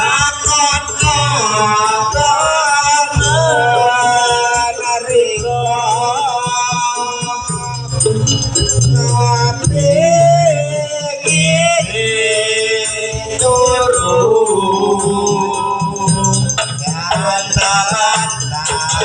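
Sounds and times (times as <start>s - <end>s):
light rattling percussion: 0.0s - 19.0s
wavering melody line: 1.2s - 19.0s
ensemble accompaniment: 7.6s - 12.1s.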